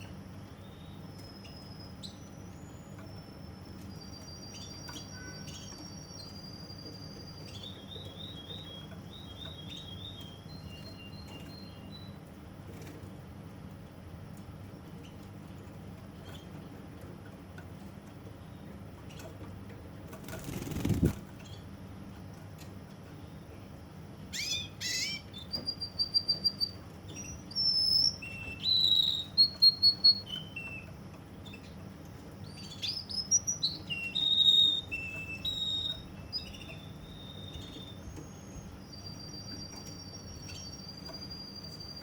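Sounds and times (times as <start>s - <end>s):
canary singing trills: 0.0s - 12.4s, 20.3s - 21.8s, 24.2s - 42.0s.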